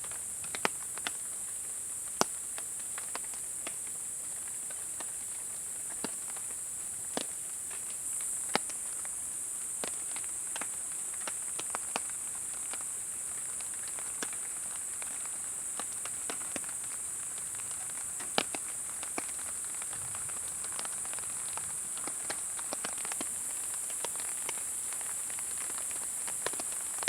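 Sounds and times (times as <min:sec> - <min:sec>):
insect chorus: 0:00.0 - 0:27.0
rain dripping: 0:00.0 - 0:27.0
campfire crackling: 0:09.8 - 0:27.0.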